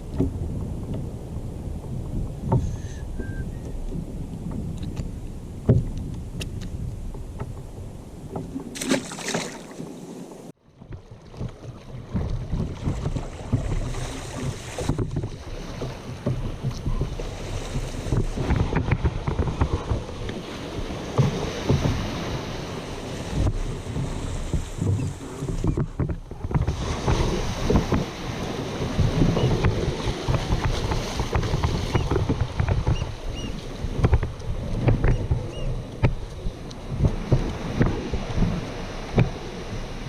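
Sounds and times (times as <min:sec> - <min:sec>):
wind buffeting microphone: 0:00.0 - 0:09.2, 0:09.9 - 0:40.0
water lapping around kayak: 0:00.0 - 0:40.0
small knocks and ticks: 0:34.0 - 0:37.9.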